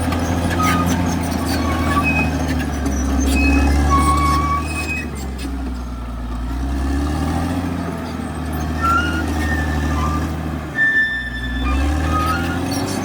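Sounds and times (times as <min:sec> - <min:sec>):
bulldozer diesel engine running: 0:00.0 - 0:13.0
short high squeals: 0:00.5 - 0:05.4, 0:08.6 - 0:13.0.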